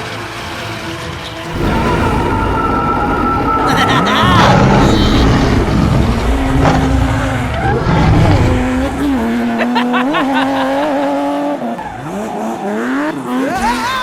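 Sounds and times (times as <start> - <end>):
cartoon engine-like hum: 0.8 - 14.0
low rumble: 1.5 - 9.6.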